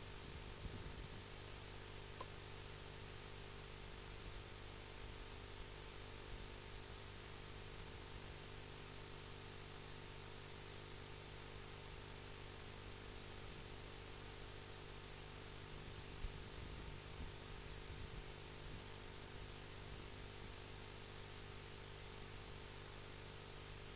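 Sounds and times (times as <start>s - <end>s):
small click: 2.2s - 2.4s.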